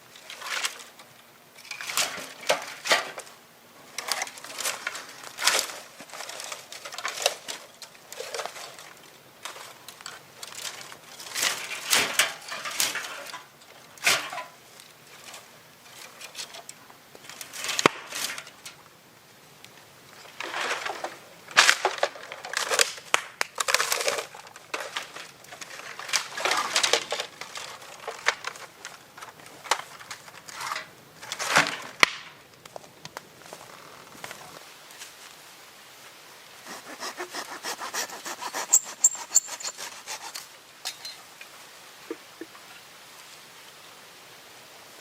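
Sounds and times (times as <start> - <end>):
wood snapping: 17.3 - 18.6, 20.4 - 33.3
wood crunching and cracking: 20.3 - 34.6, 36.6 - 40.4.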